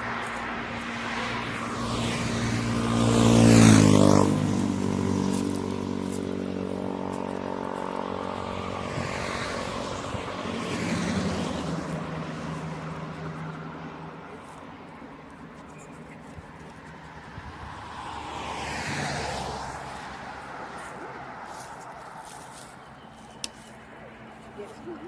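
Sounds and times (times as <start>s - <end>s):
motor vehicle passing: 0.0s - 25.0s.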